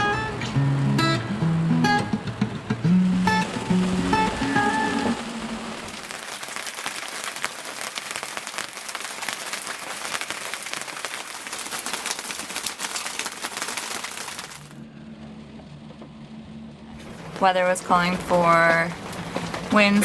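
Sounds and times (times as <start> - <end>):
heavy rain on boat deck: 2.8 - 14.8, 17.0 - 20.0.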